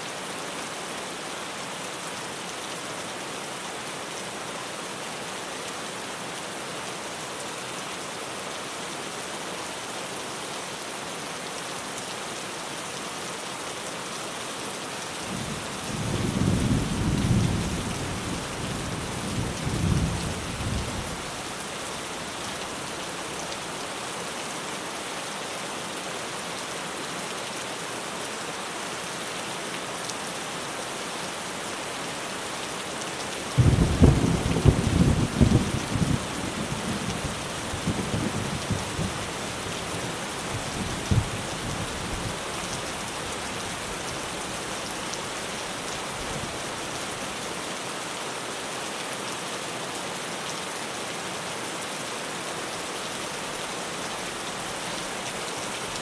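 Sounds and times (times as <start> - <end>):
heavy rain on a tin roof: 0.0 - 56.0
rolling thunder: 33.6 - 36.2.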